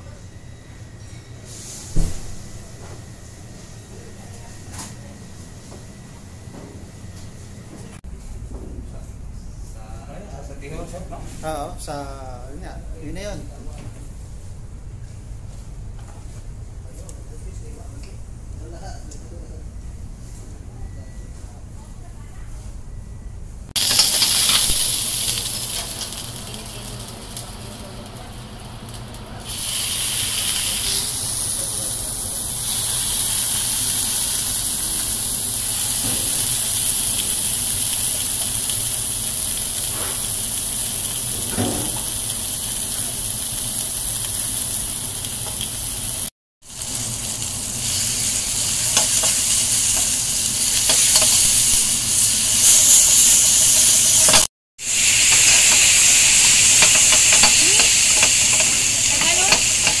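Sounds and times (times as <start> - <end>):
chicken sizzling in a skillet: 23.8 - 60.0
pan clattering: 55.2 - 60.0.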